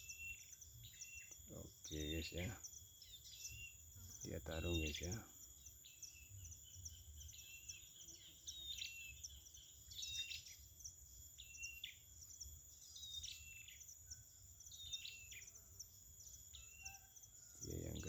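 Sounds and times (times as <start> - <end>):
birds chirping sharply: 0.0 - 10.6, 16.3 - 18.0
high insect drone: 0.0 - 18.0.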